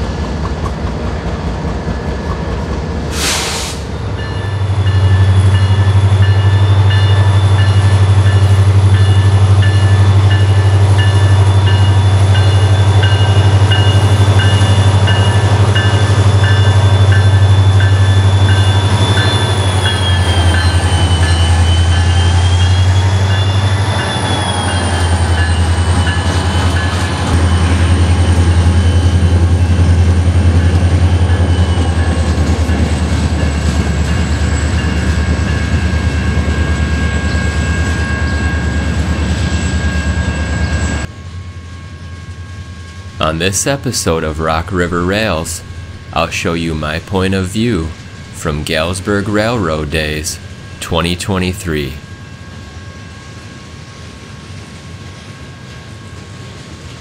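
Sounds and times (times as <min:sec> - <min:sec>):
train rumble: 0:00.0 - 0:57.0
high squealing tones: 0:11.2 - 0:30.2.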